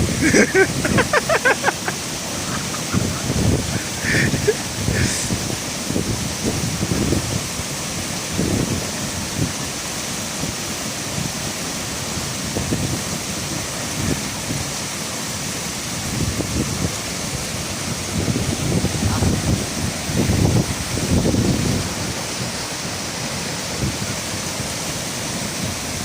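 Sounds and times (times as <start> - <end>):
waterfall rushing: 0.0 - 26.0
wind buffeting microphone: 2.5 - 7.6, 16.0 - 22.6.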